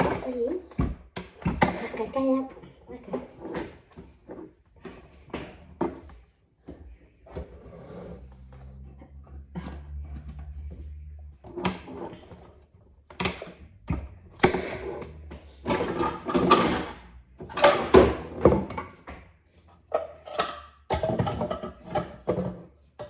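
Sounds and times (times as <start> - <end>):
kitchen knocks and clatters: 0.0 - 23.0
low hum: 8.2 - 11.7.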